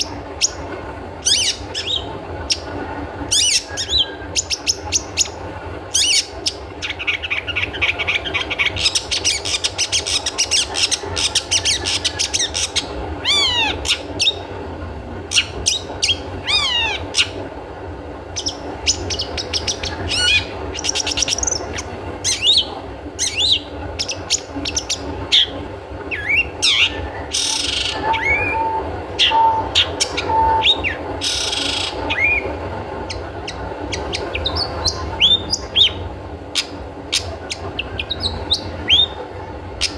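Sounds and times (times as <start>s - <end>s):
shrike singing chirps and whistles: 3.3s - 5.4s, 18.4s - 32.5s, 36.6s - 39.2s.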